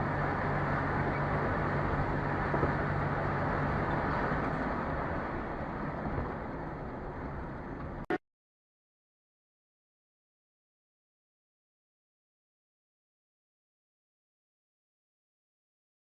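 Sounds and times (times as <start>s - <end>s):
car engine hum: 0.0s - 8.2s
road noise: 0.0s - 8.2s.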